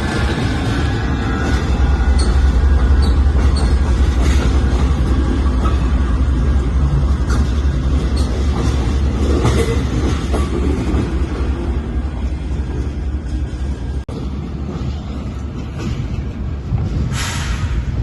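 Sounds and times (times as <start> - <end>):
freight train rumbling past: 0.0 - 18.0
wheels clicking on rail joints: 0.0 - 18.0.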